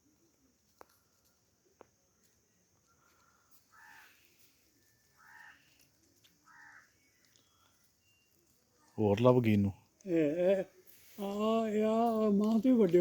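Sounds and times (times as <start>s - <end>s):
bird short harsh calls: 3.3s - 4.4s, 5.1s - 5.7s.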